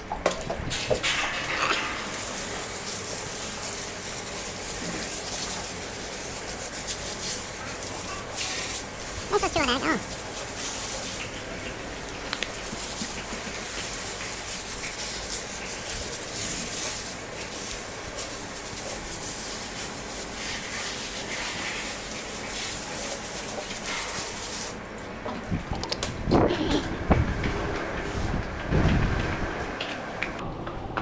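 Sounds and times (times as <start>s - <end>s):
water hose spraying: 0.7s - 24.9s.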